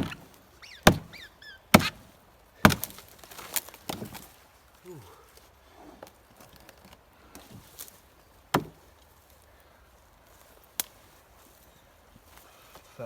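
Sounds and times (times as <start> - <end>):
axe chopping into log: 0.0 - 0.2, 0.8 - 4.2, 8.5 - 8.8.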